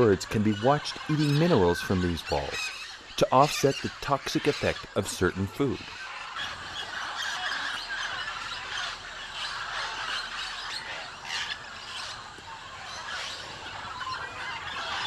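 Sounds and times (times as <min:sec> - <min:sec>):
flock of macaws squawking: 0:00.0 - 0:15.0.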